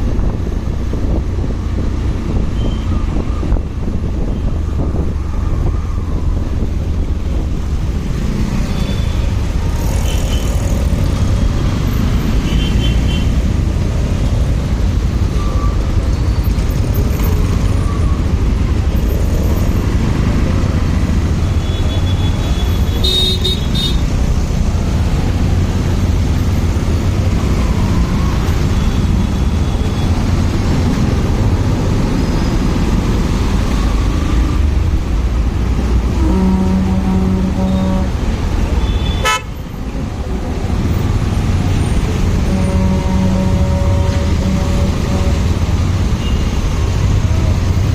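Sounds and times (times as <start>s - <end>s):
road noise: 0.0s - 47.9s
horn toot: 36.1s - 39.6s, 42.3s - 46.5s.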